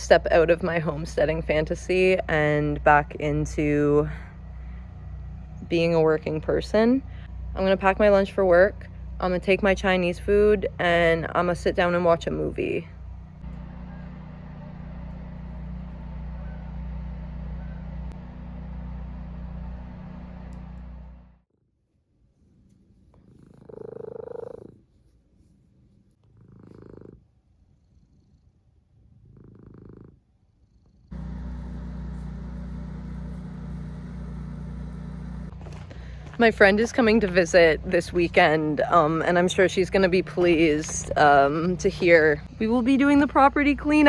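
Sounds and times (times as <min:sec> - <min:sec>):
steady low hum: 0:00.0 - 0:21.4, 0:31.1 - 0:42.8.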